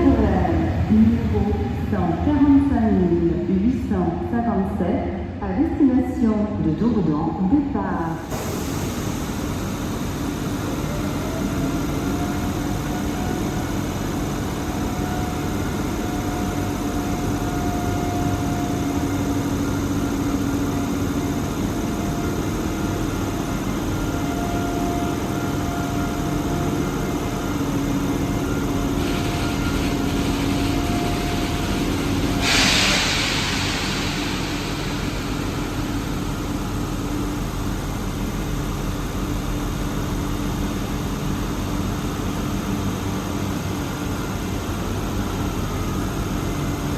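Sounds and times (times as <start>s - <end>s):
electric train humming and whining: 0.0s - 46.9s
loud hiss of air: 8.2s - 11.2s, 29.0s - 37.3s.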